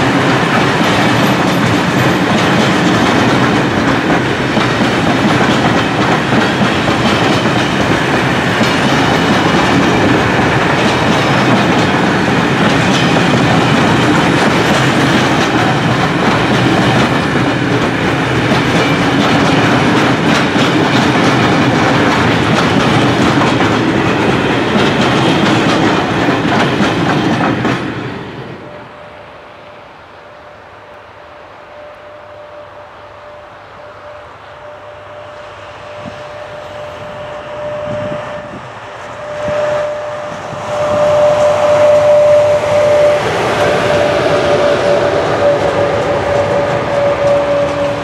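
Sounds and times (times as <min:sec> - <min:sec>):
wheels clicking over track: 0:00.0 - 0:28.0
freight train wheels on rails: 0:00.0 - 0:48.0.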